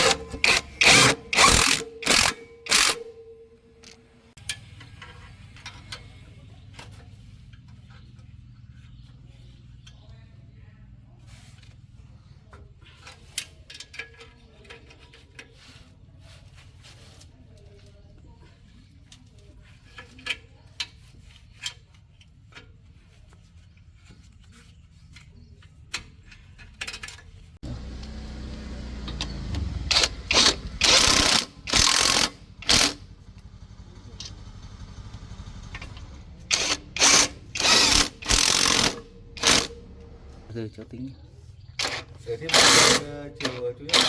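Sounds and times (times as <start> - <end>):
air tool running in bursts: 0.0 - 3.1, 29.9 - 33.0, 34.7 - 40.4, 41.8 - 43.1
low steady rumble: 27.6 - 40.6.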